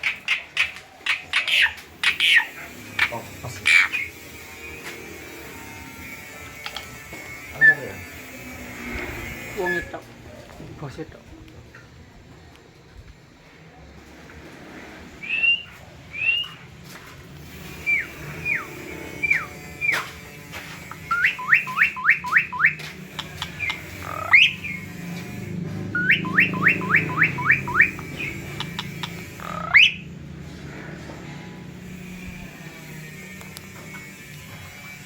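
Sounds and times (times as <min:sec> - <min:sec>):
loud sweeping bird calls: 0:00.0 - 0:05.2, 0:17.4 - 0:20.1, 0:20.9 - 0:30.2
starling whistling song: 0:07.5 - 0:08.1, 0:09.6 - 0:09.9, 0:15.2 - 0:16.7, 0:17.7 - 0:20.1, 0:21.0 - 0:25.1, 0:25.9 - 0:30.1.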